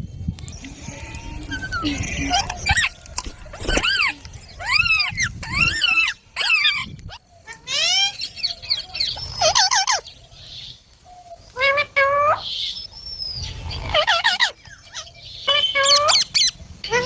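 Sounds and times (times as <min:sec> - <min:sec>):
parakeets screeching: 0:00.5 - 0:10.2, 0:13.4 - 0:17.0.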